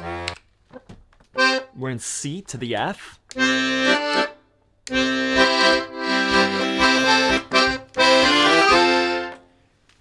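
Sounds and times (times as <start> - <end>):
accordion playing: 0.0 - 0.4, 1.4 - 2.0, 3.3 - 9.5.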